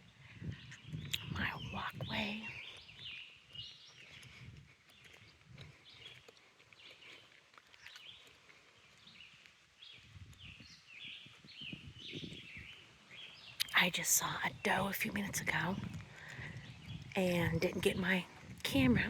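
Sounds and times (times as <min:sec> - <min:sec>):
faint birdsong: 0:00.0 - 0:19.0.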